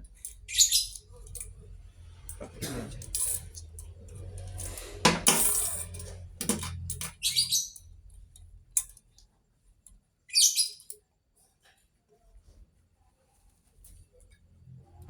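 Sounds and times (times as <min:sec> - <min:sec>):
metal tools clinking and knocking: 0:02.4 - 0:07.4
high metallic rattle: 0:03.0 - 0:07.4.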